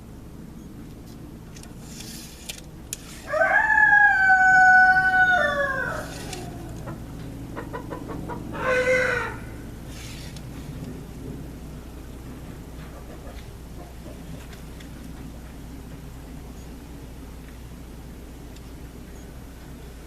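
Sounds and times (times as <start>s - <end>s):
rooster crowing: 3.2s - 9.8s.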